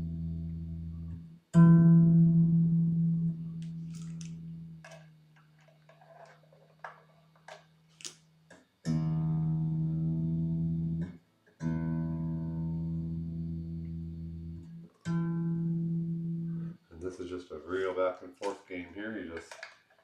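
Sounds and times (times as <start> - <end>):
small clicks and handling noises: 3.6 - 8.7, 18.4 - 20.0.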